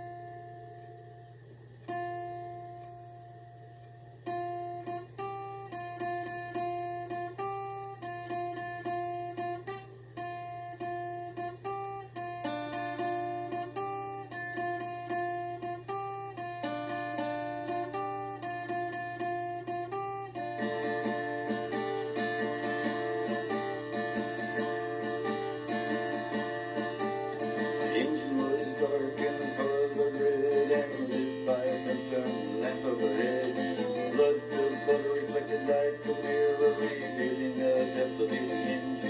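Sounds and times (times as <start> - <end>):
acoustic guitar picking: 0.0 - 39.0.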